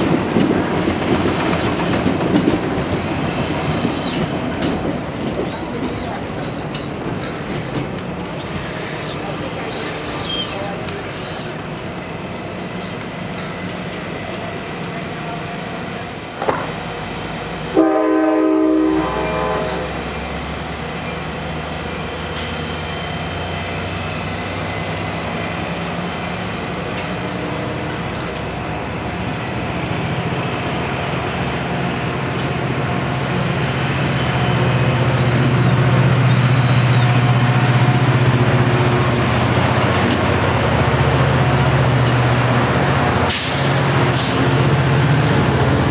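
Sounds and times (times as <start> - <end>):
diesel locomotive engine rumbling: 0.0 - 45.9
train horn blast: 17.7 - 20.1.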